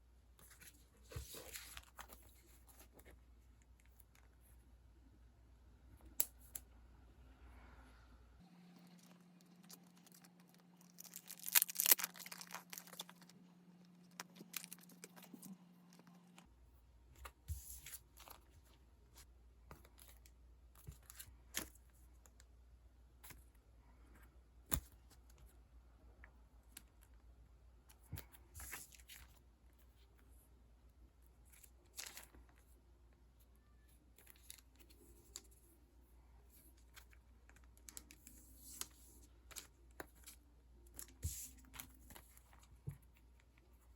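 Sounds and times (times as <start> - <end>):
packaging tearing rustle: 9.6 - 13.4.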